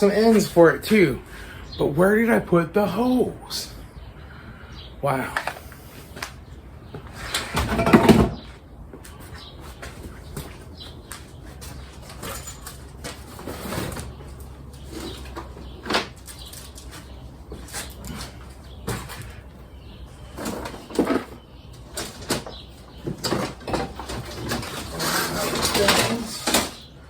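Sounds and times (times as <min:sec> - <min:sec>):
objects knocking and clunking: 0:06.9 - 0:09.1, 0:20.2 - 0:26.9.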